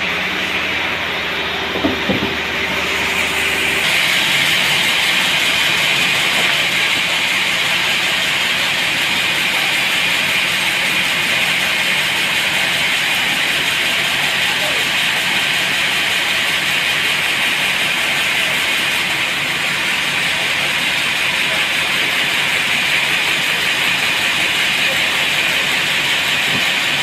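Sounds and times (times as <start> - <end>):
sawmill machine hissing: 0.0 - 27.0
short knocks: 1.7 - 2.7.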